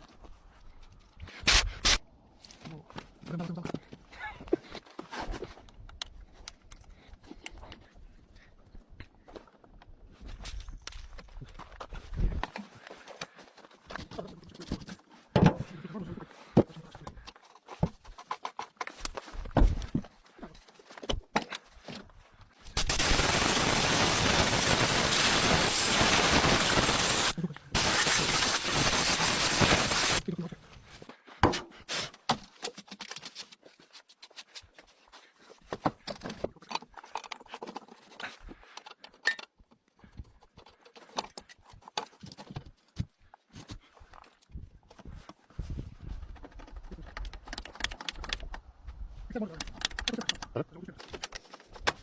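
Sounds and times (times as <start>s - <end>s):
hiss of rushing air: 22.8s - 30.2s.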